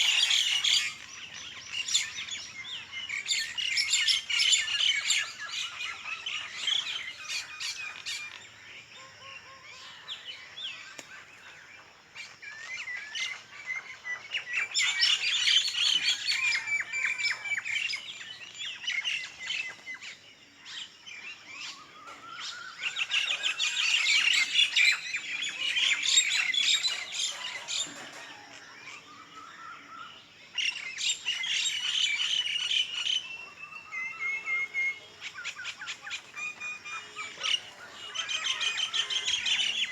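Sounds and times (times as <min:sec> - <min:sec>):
small birds chirping: 0:00.0 - 0:39.9
bird squawks: 0:30.8 - 0:39.9.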